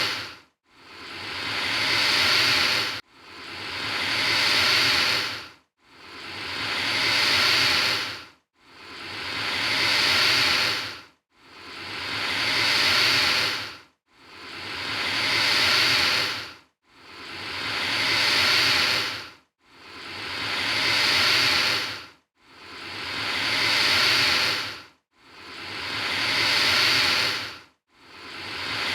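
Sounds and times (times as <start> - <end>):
alligator hissing: 0.0 - 5.4, 6.1 - 8.2, 8.8 - 11.0, 11.6 - 13.7, 14.4 - 16.5, 17.2 - 19.2, 19.9 - 22.0, 22.7 - 24.8, 25.4 - 27.6, 28.2 - 28.9.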